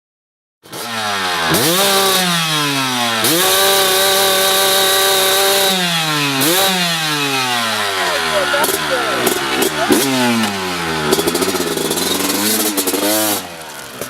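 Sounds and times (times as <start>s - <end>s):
two-stroke dirt bike revving: 0.6s - 14.0s.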